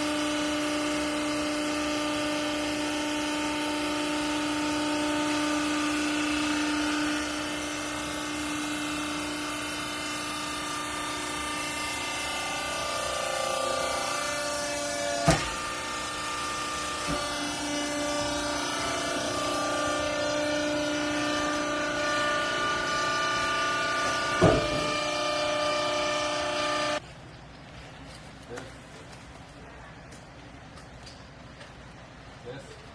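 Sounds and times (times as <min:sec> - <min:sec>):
hydraulic baler whining: 0:00.0 - 0:27.0
sharp knocks: 0:24.3 - 0:25.1.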